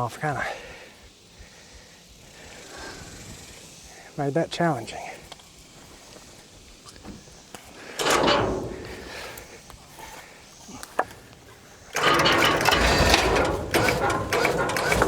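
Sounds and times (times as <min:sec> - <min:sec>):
winch ratcheting: 0:07.9 - 0:10.1, 0:10.7 - 0:15.0.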